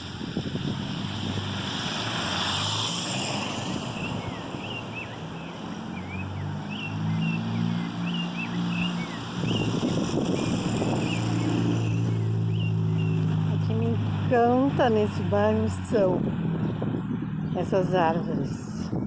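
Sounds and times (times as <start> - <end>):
traffic engine hum: 0.0 - 19.0
small birds chirping: 3.8 - 16.0.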